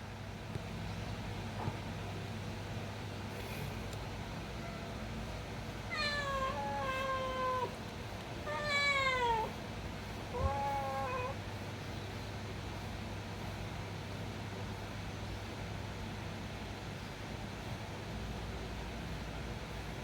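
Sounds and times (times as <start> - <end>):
cat meowing: 5.9 - 7.8, 8.4 - 9.6, 10.3 - 11.4.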